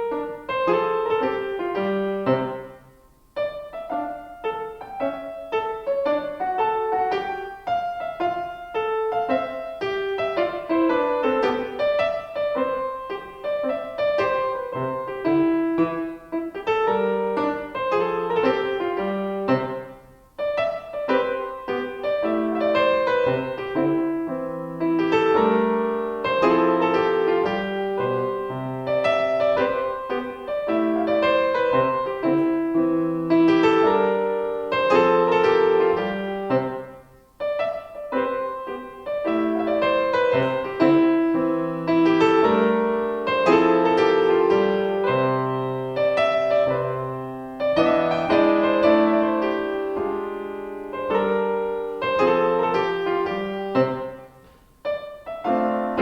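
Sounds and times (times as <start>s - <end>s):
solo piano melody: 0.0s - 56.0s.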